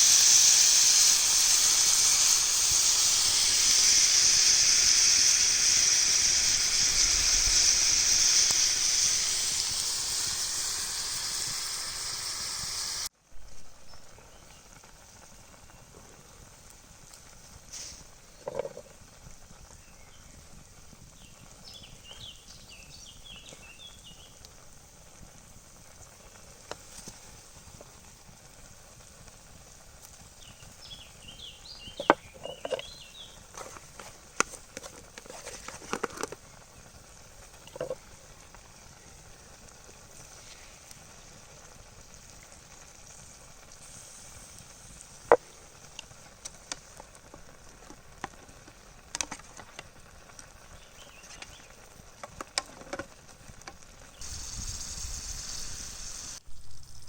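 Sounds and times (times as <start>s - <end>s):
faint steady hiss: 0.0s - 57.0s
bird chirping: 30.4s - 33.4s, 50.7s - 51.8s.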